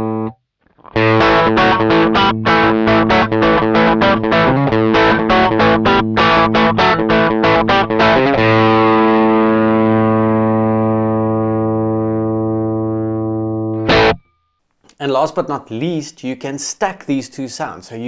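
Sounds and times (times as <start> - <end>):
distorted electric guitar chords: 0.0 - 14.3.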